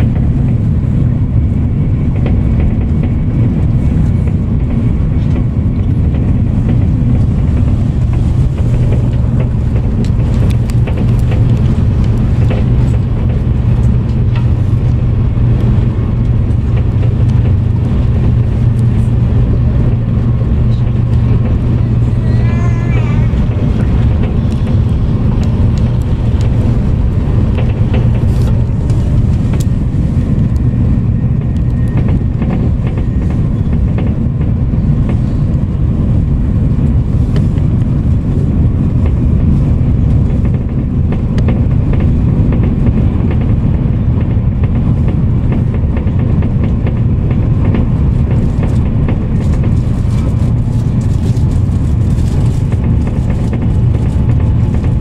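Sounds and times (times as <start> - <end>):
train interior rumble: 0.0 - 55.0.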